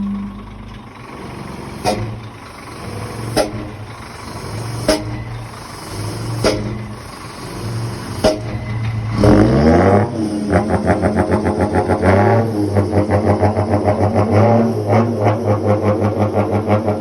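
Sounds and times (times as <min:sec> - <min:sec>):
musical exhaust tone: 0:00.0 - 0:16.2
truck idling: 0:00.0 - 0:17.0
sharp click: 0:01.8 - 0:02.2, 0:06.4 - 0:06.8.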